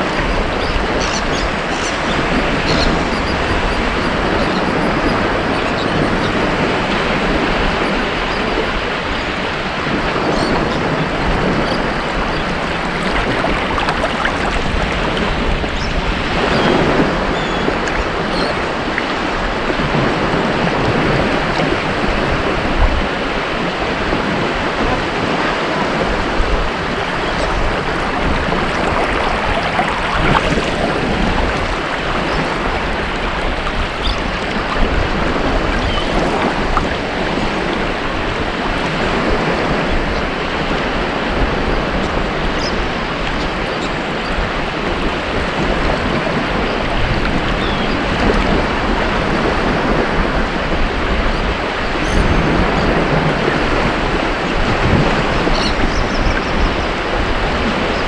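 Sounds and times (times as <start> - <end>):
ocean waves breaking on beach: 0.0 - 42.3.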